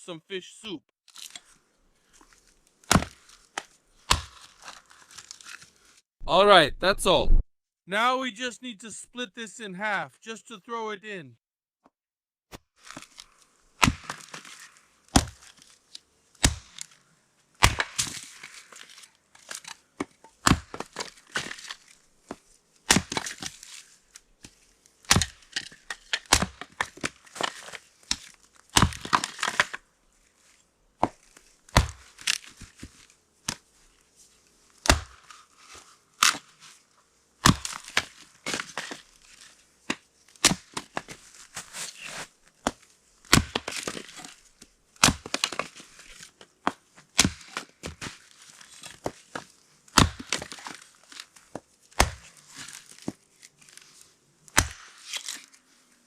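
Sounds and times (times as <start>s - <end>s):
blade chopping into wood: 2.9s - 4.4s, 16.4s - 16.8s, 34.9s - 35.2s, 43.3s - 44.1s, 45.0s - 45.5s, 47.2s - 48.0s, 50.0s - 50.6s, 52.0s - 52.2s, 54.6s - 55.3s.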